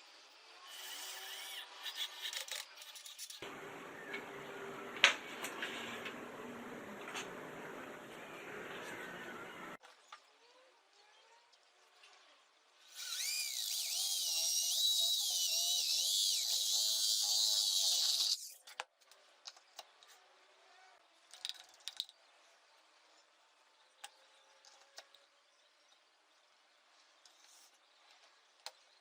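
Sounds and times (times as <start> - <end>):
electric drill whining: 12.9 - 18.4.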